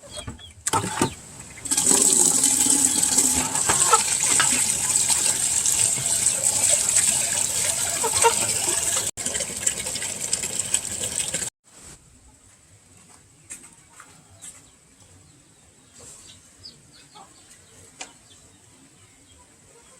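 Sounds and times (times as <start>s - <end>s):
water gushing and splashing: 1.6s - 11.5s.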